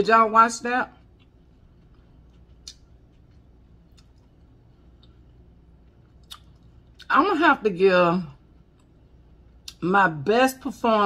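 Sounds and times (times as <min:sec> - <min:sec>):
low room hum: 0:00.0 - 0:11.0
soft chewing mouth clicks: 0:01.0 - 0:07.1, 0:08.5 - 0:09.8.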